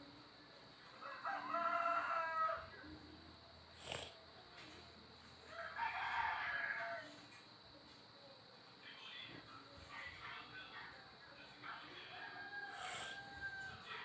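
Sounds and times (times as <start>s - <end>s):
rooster crowing: 1.0s - 2.8s, 5.4s - 7.2s, 12.1s - 14.0s.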